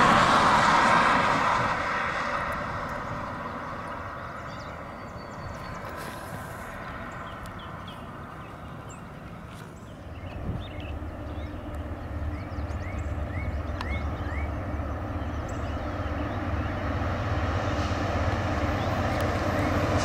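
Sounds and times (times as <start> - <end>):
passing train: 0.0 - 20.0
low steady rumble: 6.4 - 20.0
bird chirps: 6.8 - 17.0.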